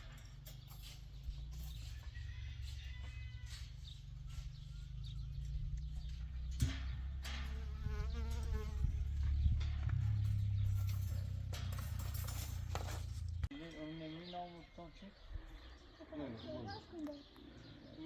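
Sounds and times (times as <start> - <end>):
fly buzzing: 7.5 - 8.9.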